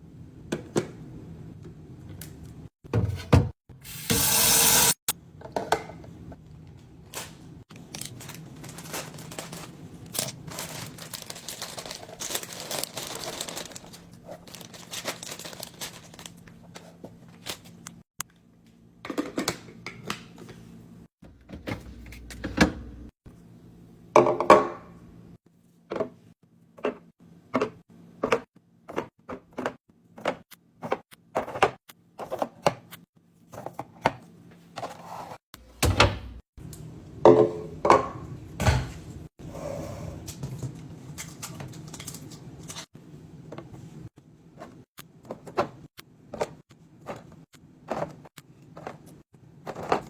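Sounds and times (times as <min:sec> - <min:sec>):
packages clicking and knocking: 0:07.7 - 0:18.0, 0:44.6 - 0:50.0.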